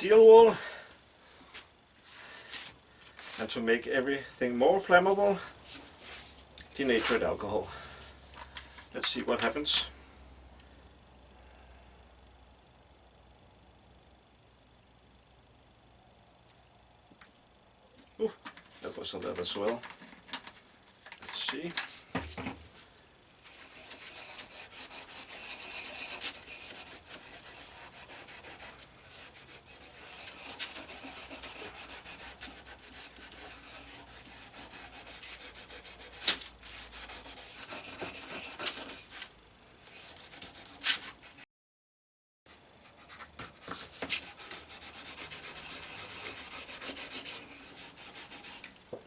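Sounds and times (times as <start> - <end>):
steel wool scrubbing wood: 23.5 - 39.3, 43.1 - 48.7.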